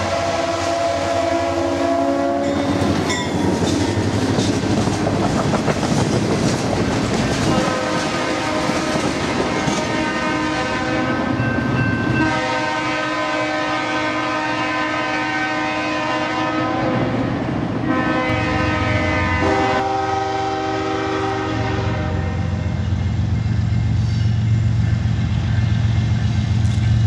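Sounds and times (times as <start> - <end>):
train horn: 0.0 - 2.9, 7.4 - 11.4, 12.1 - 22.8
diesel locomotive engine: 0.0 - 27.0
train wheels clacking on rail joints: 2.4 - 10.3.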